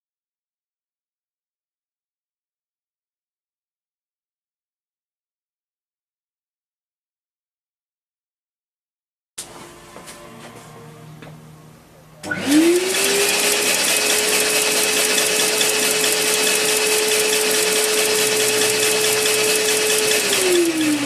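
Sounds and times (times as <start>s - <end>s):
electric motor whine: 12.2s - 21.0s
fast fine ticking: 12.9s - 21.0s.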